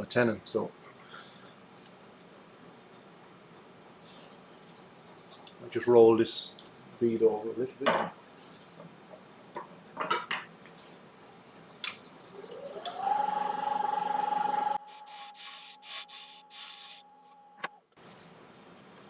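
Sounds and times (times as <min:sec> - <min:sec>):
wood lathe switch clicking: 0:11.8 - 0:13.4
lathe motor whine: 0:11.9 - 0:17.7
turning tool cutting wood: 0:12.0 - 0:17.7.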